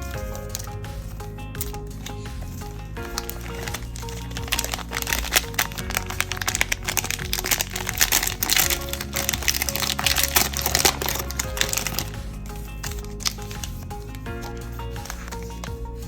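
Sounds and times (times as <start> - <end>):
background music: 0.0 - 16.0
plastic wrappers crinkling: 0.0 - 16.0.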